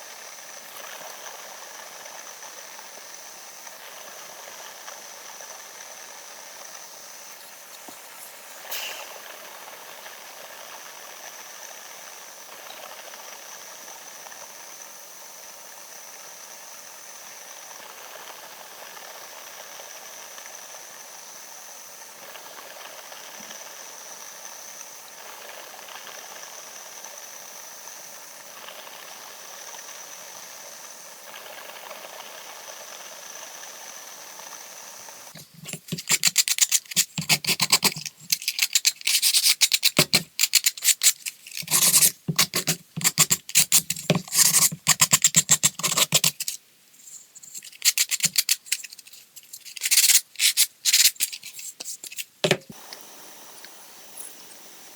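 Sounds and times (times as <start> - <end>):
steady hiss: 6.9 - 9.5, 35.4 - 54.9
hand sanding on wood: 35.4 - 46.6, 47.4 - 52.2.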